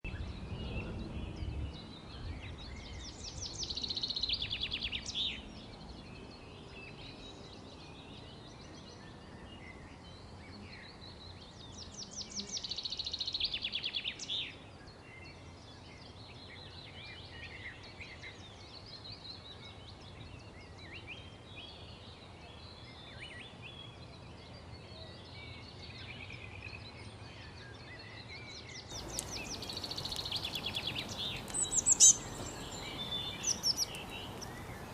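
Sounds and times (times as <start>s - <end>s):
bird trilling song: 28.9s - 34.9s
birds chirping faintly: 28.9s - 34.9s
steady background hiss: 28.9s - 34.9s.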